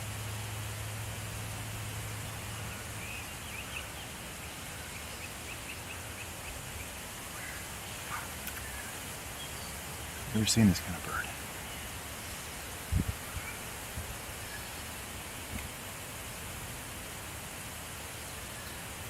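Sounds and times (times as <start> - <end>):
songbird chirping: 2.2 - 16.3
wind noise: 12.8 - 14.2.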